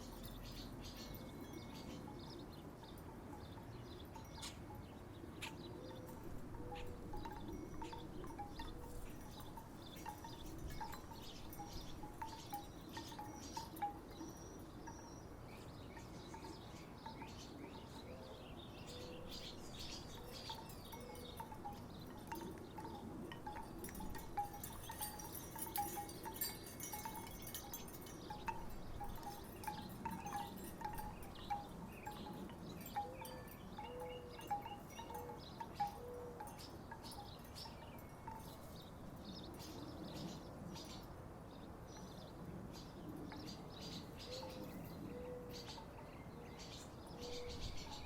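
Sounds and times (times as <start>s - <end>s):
wooden wind chimes knocking: 5.5s - 15.0s, 20.0s - 38.6s.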